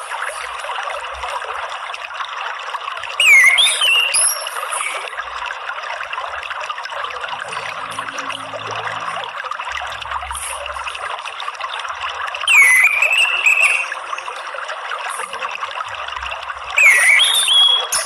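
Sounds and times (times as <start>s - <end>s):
water trickling: 0.0s - 18.0s
thrush whistling call: 3.2s - 5.0s, 12.5s - 14.0s, 16.8s - 18.0s.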